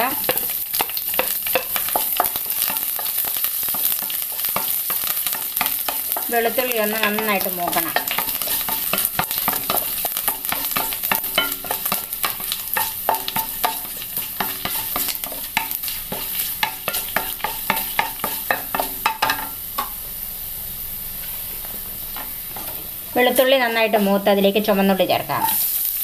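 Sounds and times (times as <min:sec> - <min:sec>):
food sizzling in hot oil: 0:00.0 - 0:26.0
wooden spatula scraping a pan: 0:00.2 - 0:19.4.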